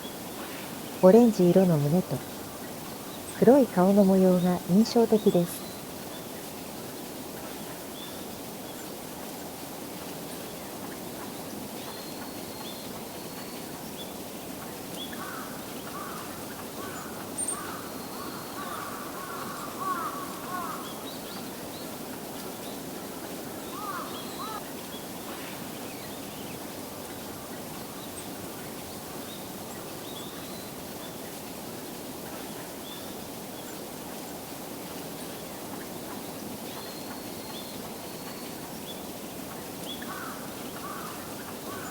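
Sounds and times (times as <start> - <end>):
wild birds calling: 15.0 - 21.4, 23.6 - 24.6, 39.9 - 41.9.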